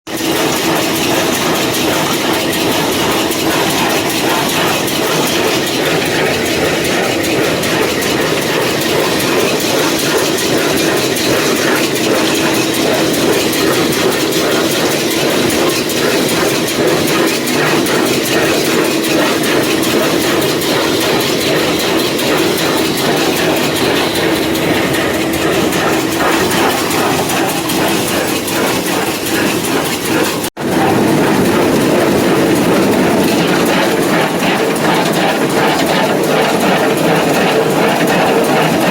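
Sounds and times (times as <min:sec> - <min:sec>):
baler mechanical clatter: 0:00.1 - 0:38.9
tractor engine drone: 0:00.1 - 0:38.9.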